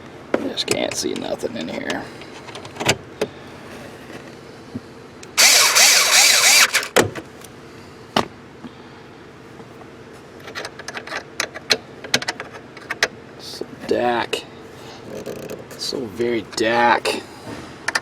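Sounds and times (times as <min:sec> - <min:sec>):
loud noisy burst: 0:05.3 - 0:06.9
clicks and knocks under dashboard: 0:15.0 - 0:15.9.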